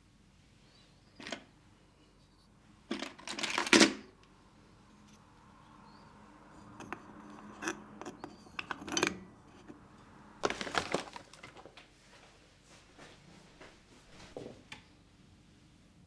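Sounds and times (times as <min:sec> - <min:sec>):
small objects clinking and knocking: 0:10.4 - 0:11.7.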